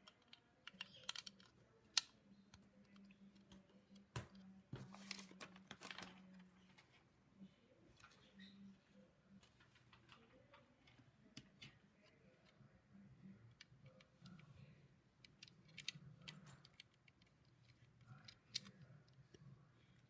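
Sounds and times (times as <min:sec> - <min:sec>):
plastic bricks clicking together: 0:00.0 - 0:02.1
faint low hum: 0:00.0 - 0:20.0.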